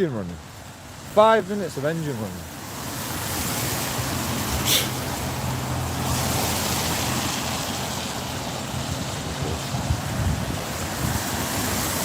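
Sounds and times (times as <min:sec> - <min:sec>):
road traffic noise: 0:00.0 - 0:12.0
vehicle engine humming: 0:01.7 - 0:12.0
sharp hiss: 0:04.6 - 0:05.0.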